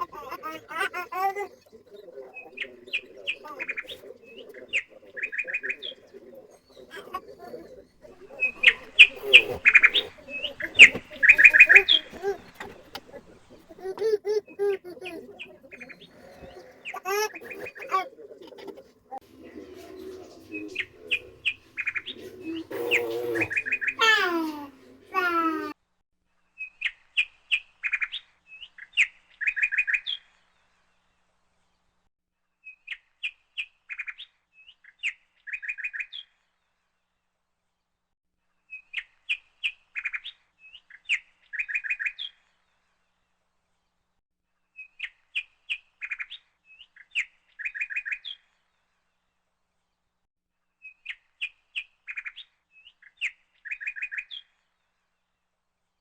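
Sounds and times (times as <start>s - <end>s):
songbird chirping and trilling: 0.0s - 25.8s.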